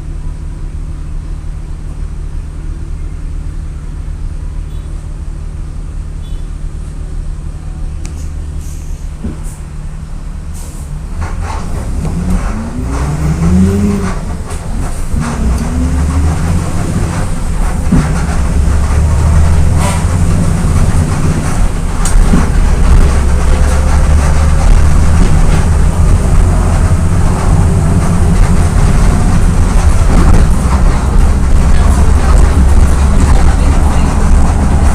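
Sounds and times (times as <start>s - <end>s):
diesel bus engine under load: 0.0s - 34.9s
bus body rattles: 8.0s - 34.9s.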